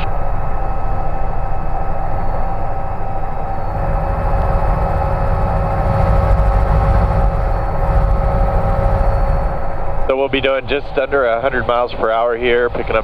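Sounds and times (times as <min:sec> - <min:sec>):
helicopter cabin drone: 0:00.0 - 0:13.0
turbine whine tones: 0:00.0 - 0:13.0
low rumble: 0:02.6 - 0:12.2.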